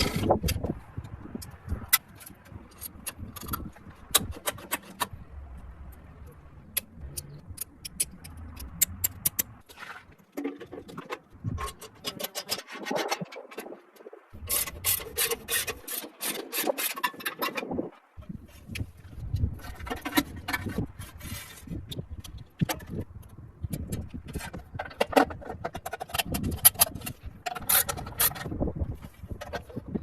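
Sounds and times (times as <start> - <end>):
sharp clicks and knocks: 0.0 - 17.8
rubbing and scraping on metal parts: 0.0 - 30.0.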